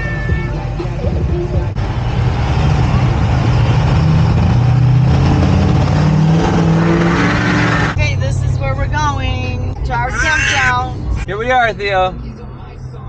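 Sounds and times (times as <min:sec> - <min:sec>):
road noise: 0:00.0 - 0:13.0
vehicle engine accelerating: 0:00.8 - 0:10.0.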